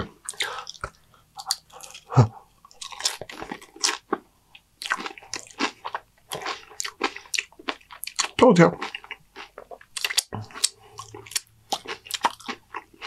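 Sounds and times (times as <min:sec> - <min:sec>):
tortilla chips crunching: 0:04.8 - 0:13.0.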